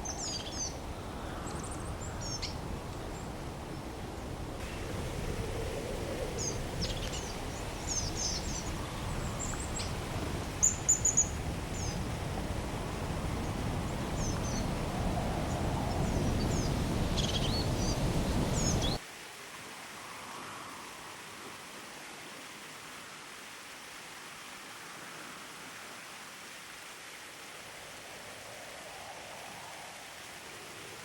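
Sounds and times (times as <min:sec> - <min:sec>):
mountain water rushing: 0:00.0 - 0:31.0
quiet hiss: 0:00.0 - 0:31.0
small birds chirping: 0:06.3 - 0:19.0.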